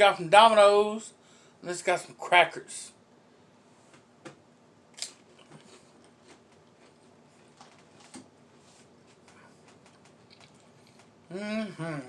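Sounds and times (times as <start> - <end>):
man chewing food: 5.0 - 11.3.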